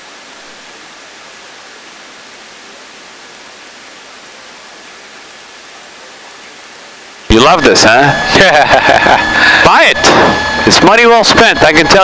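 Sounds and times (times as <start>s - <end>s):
radio intercom hiss: 5.9s - 12.0s.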